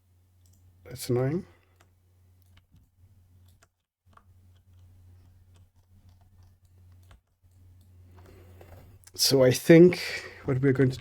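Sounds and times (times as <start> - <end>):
low steady hum: 0.0 - 11.0
faint clicks and taps: 1.6 - 9.2.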